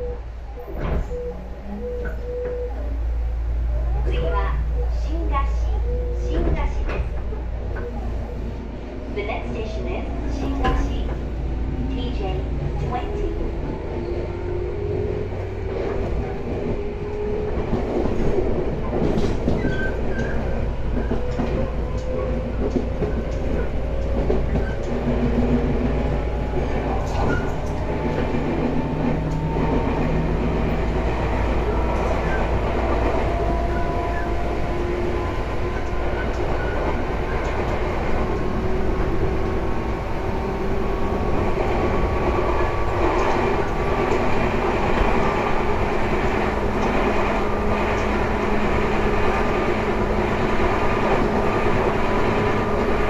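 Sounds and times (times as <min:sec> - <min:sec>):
train rumble: 0:00.0 - 0:53.0
wheels clattering on track: 0:15.2 - 0:53.0.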